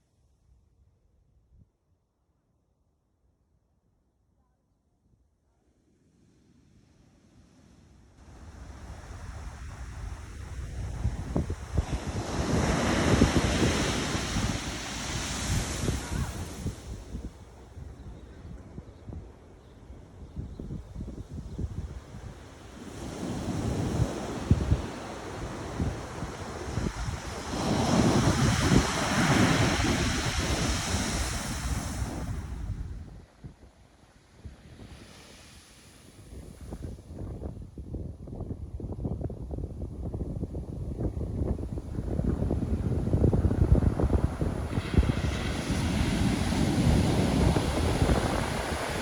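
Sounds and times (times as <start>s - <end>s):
ocean wave breaking: 8.3s - 17.1s, 22.8s - 32.7s, 42.0s - 49.0s
wind buffeting microphone: 8.3s - 33.6s, 36.3s - 49.0s.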